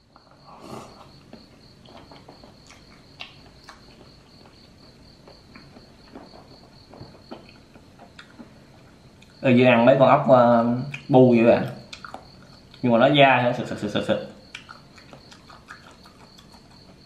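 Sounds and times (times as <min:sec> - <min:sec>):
closed-mouth chewing: 0:00.2 - 0:06.3, 0:11.7 - 0:12.8, 0:14.4 - 0:17.0.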